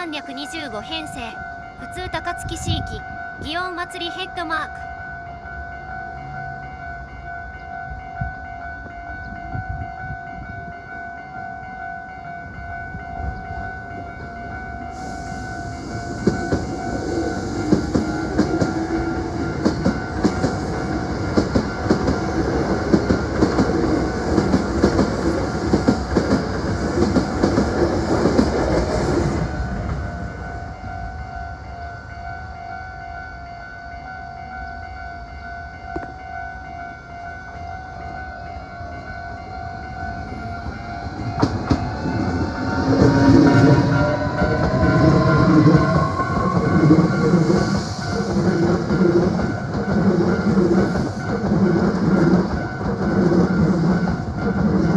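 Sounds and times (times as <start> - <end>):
train wheels clattering: 15.0 - 30.1, 41.2 - 54.9
pulsing ringing tone: 29.2 - 54.9.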